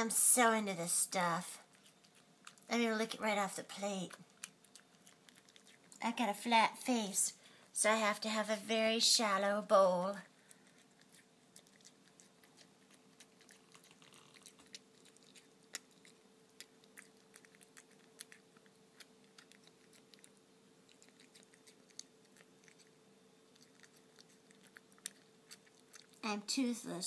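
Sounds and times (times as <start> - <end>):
low steady hum: 0.0 - 27.0
wet smacking and clicking: 1.6 - 2.8, 4.1 - 6.0, 10.4 - 26.3
cat licking food: 1.6 - 3.2, 4.1 - 6.1, 10.2 - 26.3.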